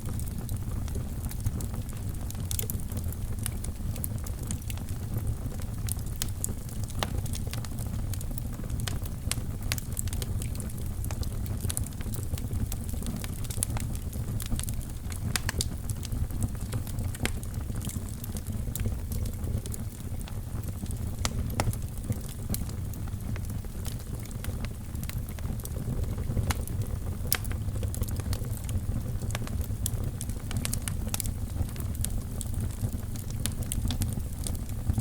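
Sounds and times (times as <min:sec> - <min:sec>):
fire pops and crackles: 0:00.0 - 0:35.0
low rumble of flames: 0:00.0 - 0:35.0.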